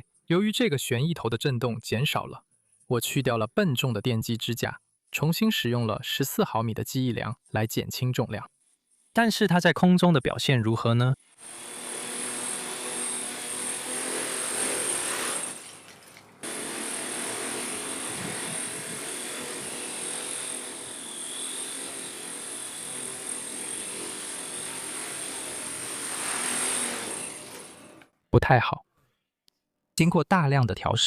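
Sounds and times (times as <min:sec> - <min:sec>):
buzzing rotor noise: 0:11.4 - 0:15.8, 0:16.4 - 0:28.0
electric motor whine: 0:11.4 - 0:15.8, 0:16.4 - 0:28.0.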